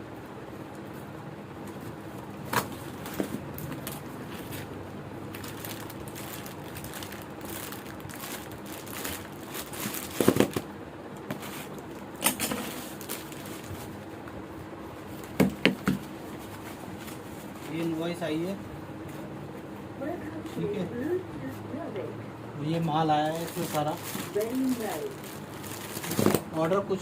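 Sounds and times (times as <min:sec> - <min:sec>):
steady background hum: 0:00.0 - 0:27.0
plastic packaging crinkling: 0:05.2 - 0:10.7, 0:11.3 - 0:14.0, 0:23.0 - 0:26.6.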